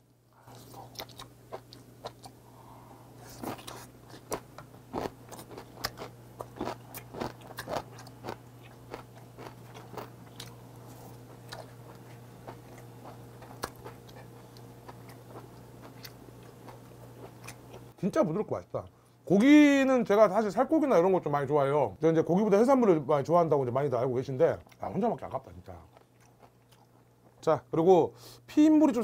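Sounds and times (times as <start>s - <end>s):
chewing with wet crunches: 3.3s - 18.0s, 25.8s - 27.4s.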